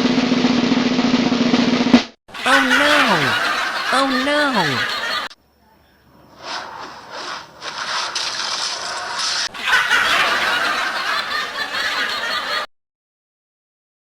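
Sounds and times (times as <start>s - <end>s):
people laughing: 2.3s - 5.4s, 9.5s - 12.7s.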